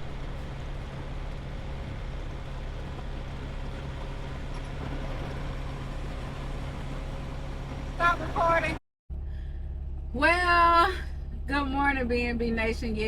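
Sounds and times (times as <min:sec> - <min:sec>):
steady rush of noise: 0:00.0 - 0:08.8
diesel truck engine running: 0:00.0 - 0:13.0.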